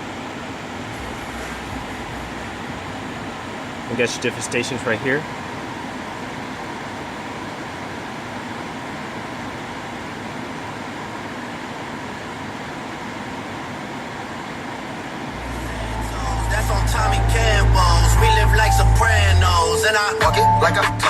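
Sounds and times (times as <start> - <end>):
car stereo music with heavy bass: 0.2 - 4.1, 15.4 - 21.0.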